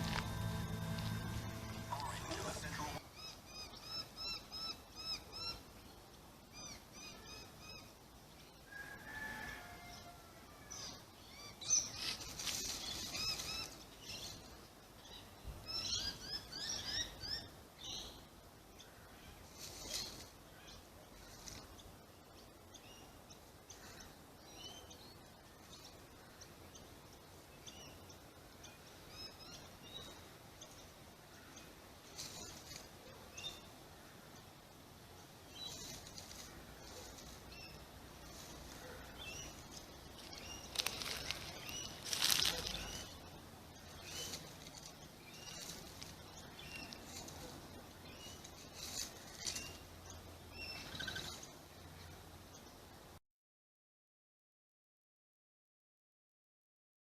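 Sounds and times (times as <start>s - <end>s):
rustling in dry leaves: 0.0s - 3.7s, 11.3s - 18.2s, 18.9s - 22.1s, 31.3s - 34.2s, 34.9s - 52.1s
birds chirping: 0.0s - 5.6s, 35.4s - 52.8s
low steady background hiss: 0.0s - 53.2s.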